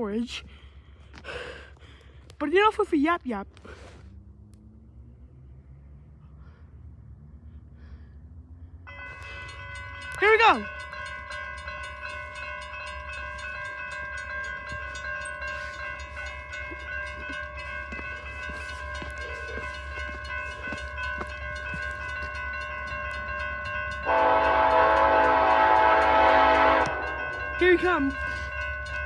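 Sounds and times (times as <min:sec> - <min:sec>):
steady ringing tones: 0:08.9 - 0:29.0
train horn chord: 0:24.0 - 0:28.4.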